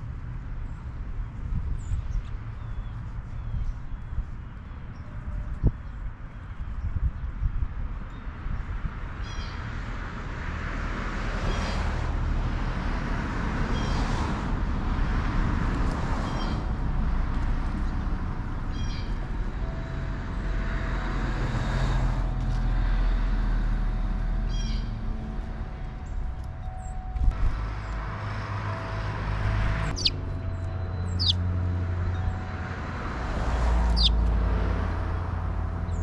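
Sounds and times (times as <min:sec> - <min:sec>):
road traffic rumble: 0:00.0 - 0:36.0
small bird chirping: 0:29.9 - 0:31.4, 0:33.9 - 0:34.2.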